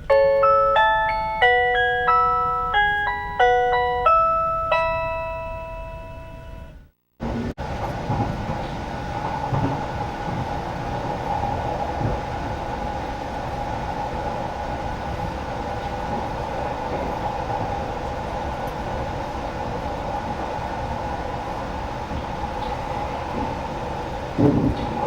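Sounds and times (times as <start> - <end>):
train car rumble and hum: 0.0 - 25.0
wheels knocking: 7.2 - 25.0.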